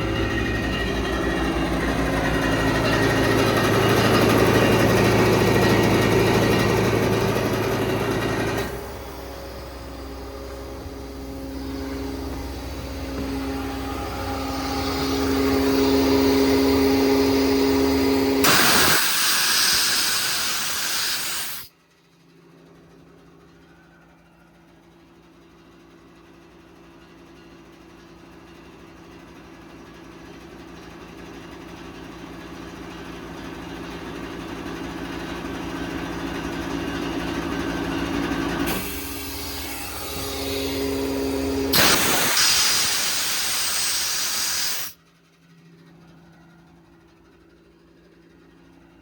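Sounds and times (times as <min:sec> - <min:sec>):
air compressor humming: 0:00.0 - 0:21.7, 0:37.0 - 0:45.5
loud hiss of air: 0:08.6 - 0:21.7, 0:38.7 - 0:45.0.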